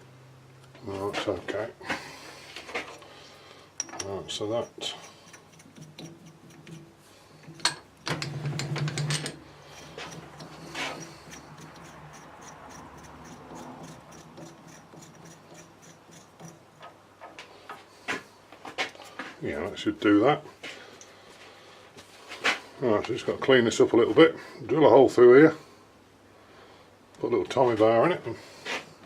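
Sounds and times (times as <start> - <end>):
metal scraping and clicking: 3.8 - 17.0.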